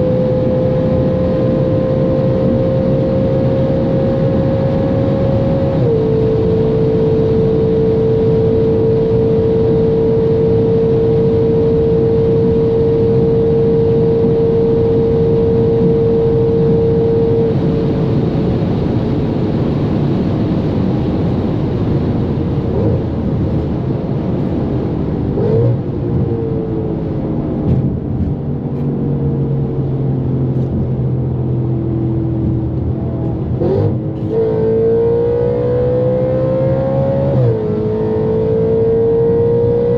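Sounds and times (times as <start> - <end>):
car engine at high speed: 0.0 - 39.9
wind noise: 0.0 - 39.9.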